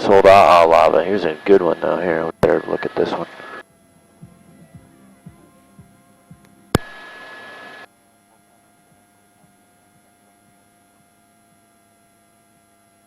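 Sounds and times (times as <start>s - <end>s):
faint electrical hum: 0.0s - 13.0s
sharp click: 6.8s - 7.0s.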